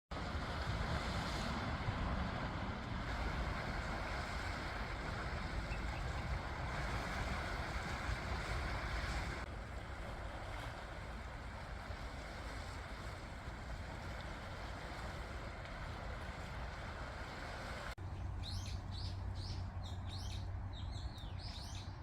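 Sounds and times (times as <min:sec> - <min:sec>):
sea waves washing onto beach: 0:00.1 - 0:18.0
wind buffeting microphone: 0:00.2 - 0:17.3.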